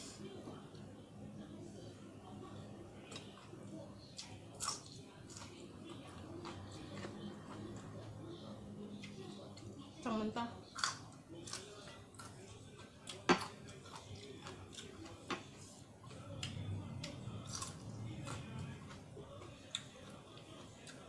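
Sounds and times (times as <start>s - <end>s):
chewing: 2.5s - 10.0s, 10.6s - 21.0s.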